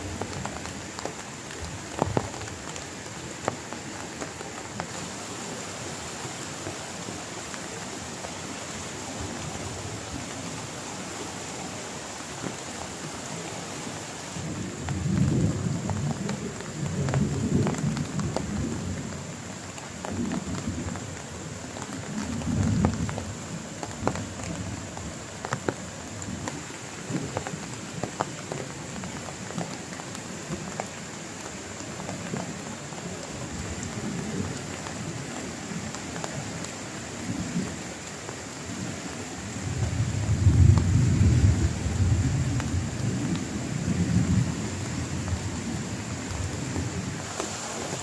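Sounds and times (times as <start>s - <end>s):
heavy rain: 0.0s - 48.0s
thunder rumbling: 39.6s - 43.3s.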